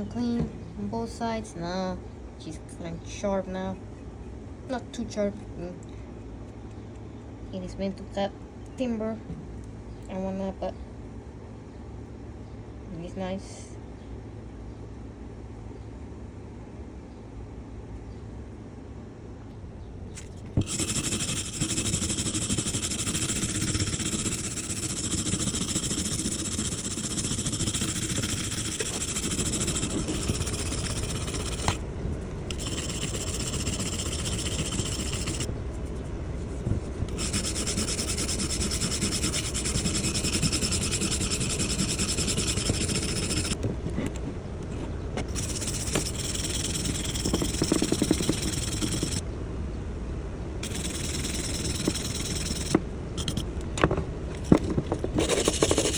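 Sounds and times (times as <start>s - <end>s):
abrasive grinding axe head: 20.2s - 35.5s, 37.1s - 49.2s, 50.6s - 55.9s.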